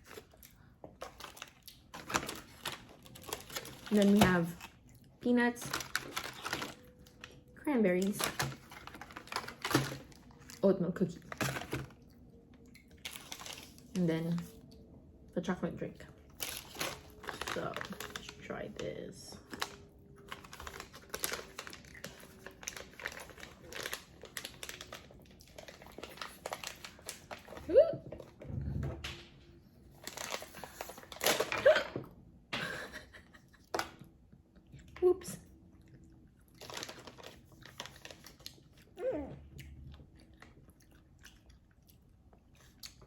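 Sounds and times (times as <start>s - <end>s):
chewing and crunching: 0.0s - 15.2s, 15.9s - 28.4s, 33.4s - 43.0s
plastic packaging crinkling: 1.0s - 14.7s, 16.1s - 27.8s, 29.9s - 31.8s, 36.5s - 38.7s.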